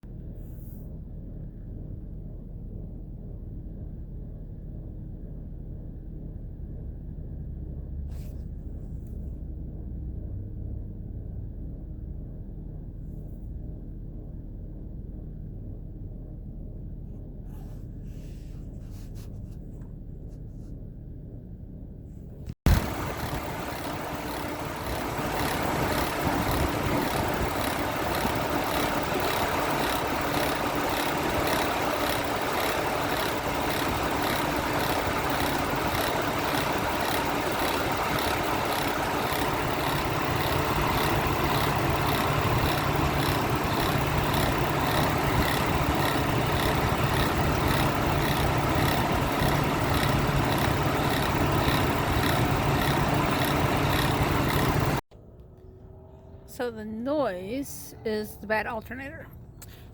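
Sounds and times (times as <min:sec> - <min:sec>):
alternator whirring rattle: 0:21.1 - 0:59.9
car engine idling: 0:22.7 - 0:56.1.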